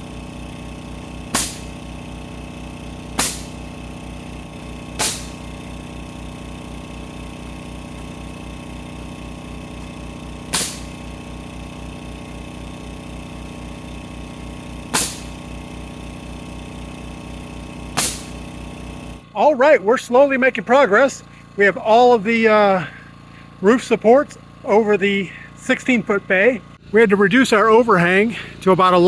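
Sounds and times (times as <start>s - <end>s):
small engine running: 0.0s - 29.0s
sharp loud cracks: 1.3s - 2.0s, 3.0s - 3.8s, 4.9s - 5.7s, 10.5s - 11.1s, 14.9s - 15.6s, 17.9s - 18.5s.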